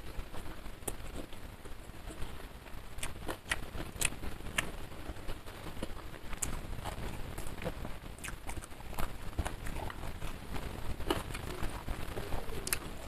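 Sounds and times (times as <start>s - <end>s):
chewing: 3.0s - 4.7s, 5.7s - 13.0s.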